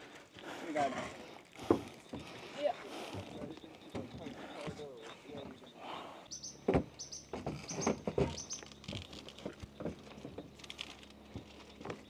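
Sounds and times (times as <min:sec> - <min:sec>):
bird chirping high: 0:03.3 - 0:08.9.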